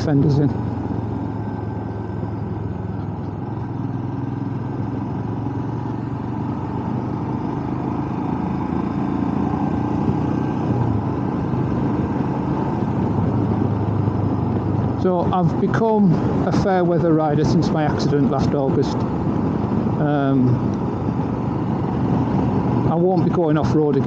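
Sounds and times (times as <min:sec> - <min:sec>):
motorcycle engine running: 0:00.0 - 0:24.0
wind rush: 0:09.4 - 0:23.4.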